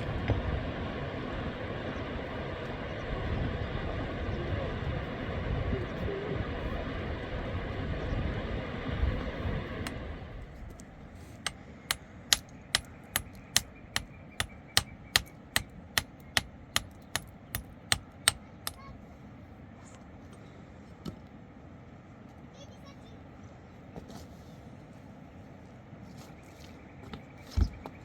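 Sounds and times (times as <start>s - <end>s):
hammer striking: 11.9s - 18.8s.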